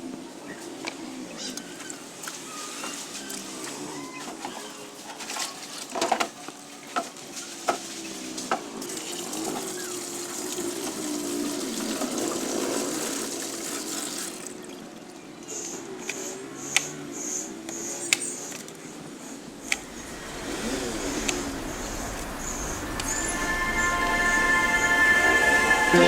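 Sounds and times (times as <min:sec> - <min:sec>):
water running from a tap: 0:08.8 - 0:15.1.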